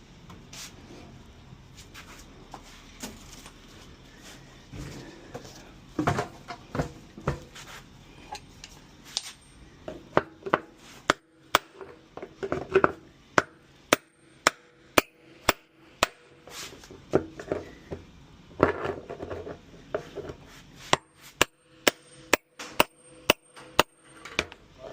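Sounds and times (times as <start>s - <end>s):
hammer striking metal: 11.1s - 11.9s, 13.4s - 16.4s, 20.9s - 24.4s.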